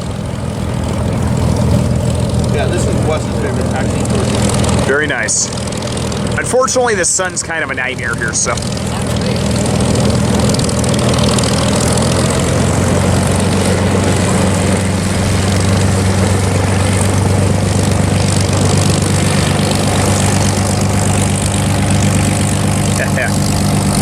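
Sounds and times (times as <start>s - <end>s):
piston aircraft engine running: 0.0s - 24.0s
propeller noise: 0.0s - 24.0s.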